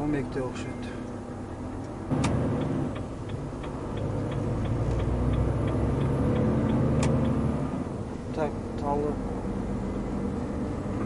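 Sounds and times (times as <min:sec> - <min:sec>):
truck engine from inside cab: 0:00.0 - 0:11.0
turn signal ticking: 0:01.1 - 0:08.9.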